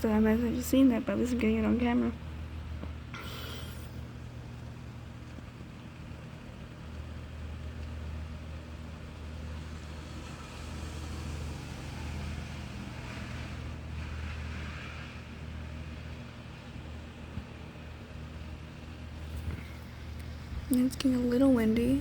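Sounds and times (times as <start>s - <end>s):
low rumble of traffic: 0.0s - 22.0s
tyres hissing on wet road: 9.6s - 15.8s.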